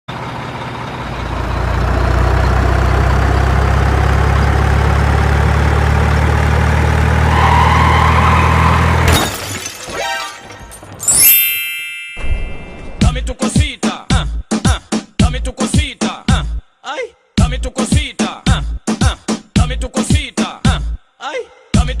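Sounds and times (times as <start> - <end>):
truck engine running: 0.1 - 9.1
clattering breaking noise: 9.0 - 11.4.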